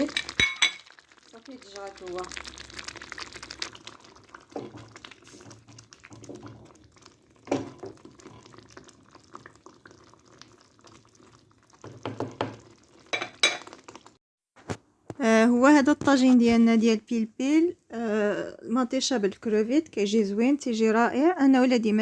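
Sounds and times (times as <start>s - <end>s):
sauce simmering with wet pops: 0.0s - 14.2s.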